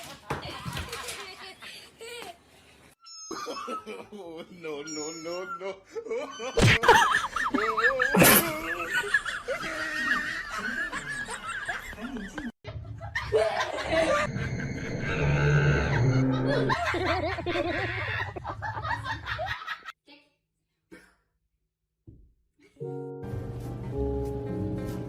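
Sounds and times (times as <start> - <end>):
people laughing: 3.3 - 4.8, 5.6 - 14.7, 15.8 - 19.9.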